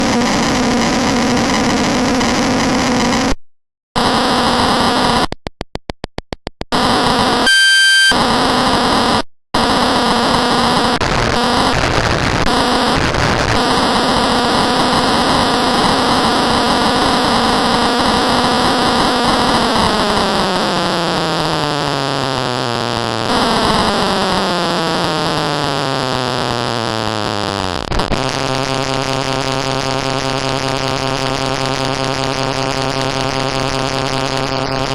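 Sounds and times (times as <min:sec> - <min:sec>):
harsh electronic noise: 0:04.0 - 0:05.3, 0:06.7 - 0:34.9
clear high tones: 0:07.4 - 0:08.2.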